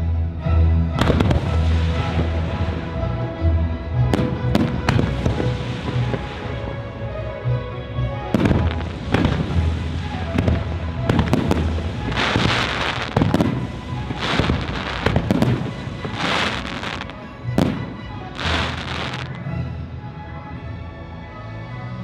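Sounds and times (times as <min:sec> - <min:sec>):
music: 0:00.0 - 0:22.0
fireworks bursting with sharp bangs: 0:01.0 - 0:03.0, 0:04.1 - 0:06.7, 0:08.3 - 0:19.4.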